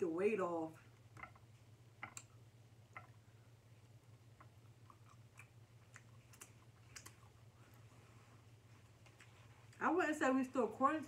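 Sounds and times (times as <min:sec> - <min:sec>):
low steady hum: 0:00.0 - 0:11.0
chewing and lip smacks: 0:04.4 - 0:08.0, 0:08.7 - 0:09.8.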